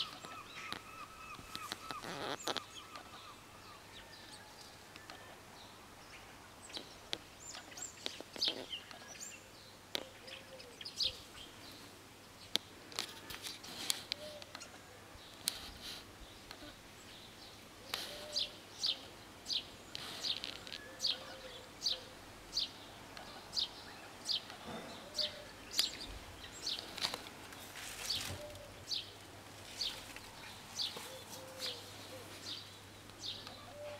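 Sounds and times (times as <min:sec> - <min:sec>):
bird chirping: 0:00.0 - 0:12.7, 0:14.1 - 0:33.9
soft low coos: 0:17.8 - 0:19.2, 0:23.1 - 0:27.0, 0:29.8 - 0:33.9.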